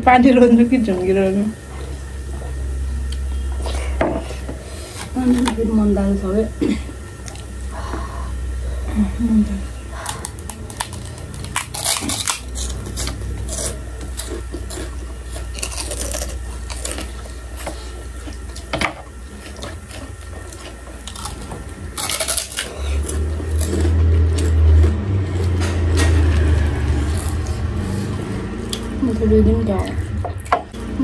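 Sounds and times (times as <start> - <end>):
crunching snack sticks: 10.0 - 27.8.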